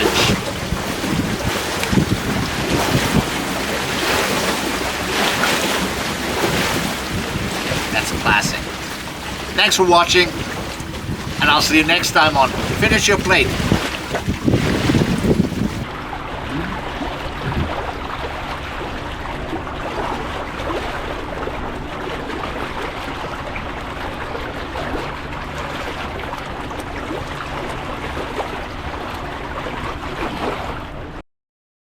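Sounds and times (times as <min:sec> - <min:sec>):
low engine drone: 0:00.0 - 0:31.2
water rushing past boat: 0:00.0 - 0:31.2.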